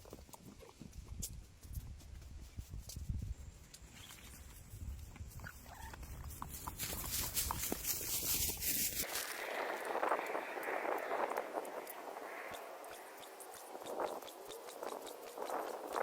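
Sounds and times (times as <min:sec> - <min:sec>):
footsteps crunching on rough path: 0:00.0 - 0:11.0
rustling hiss: 0:01.2 - 0:16.0.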